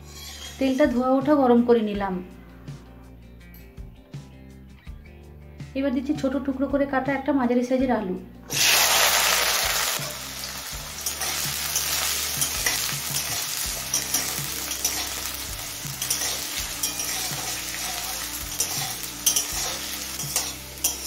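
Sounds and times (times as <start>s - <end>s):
potatoes sizzling in oil: 0.0s - 0.8s, 8.5s - 21.0s
metal spatula scraping a pan: 0.0s - 1.0s, 10.0s - 21.0s.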